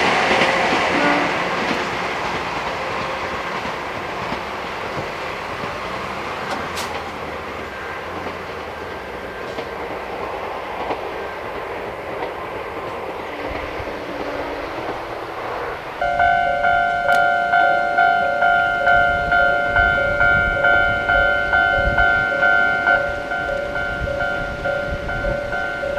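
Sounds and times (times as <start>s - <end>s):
electric train rumbling: 0.0s - 25.9s
level-crossing warning bell: 2.3s - 6.1s, 13.4s - 25.9s.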